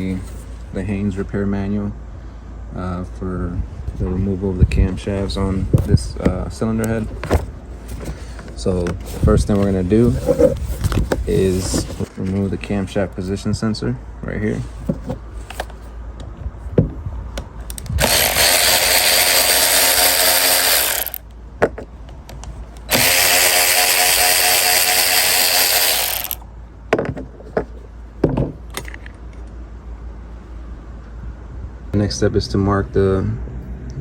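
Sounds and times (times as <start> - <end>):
handheld power tool running: 17.8 - 21.2, 22.9 - 26.4.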